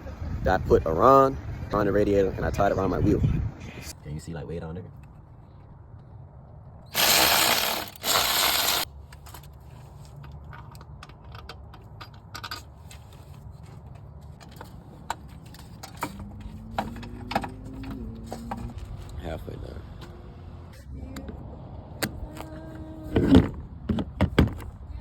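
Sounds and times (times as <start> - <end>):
hissing bursts: 6.9 - 8.8.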